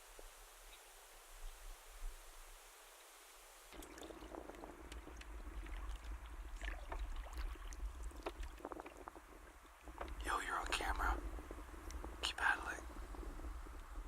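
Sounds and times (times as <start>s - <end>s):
paddles splashing in water: 3.7s - 10.2s.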